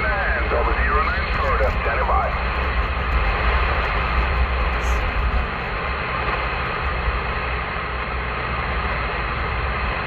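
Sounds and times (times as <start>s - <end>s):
cb radio static hiss: 0.0s - 6.6s
low rumble of car on road: 0.0s - 10.0s.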